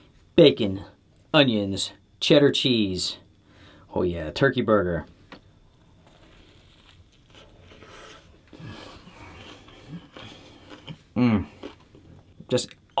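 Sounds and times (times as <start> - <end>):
closed-mouth hums: 5.6 - 12.5
wet chewing: 6.0 - 12.4.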